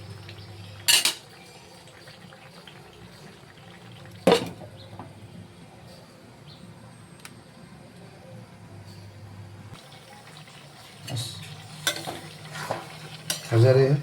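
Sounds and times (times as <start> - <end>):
water and pot noise: 0.0 - 5.2, 9.8 - 14.0.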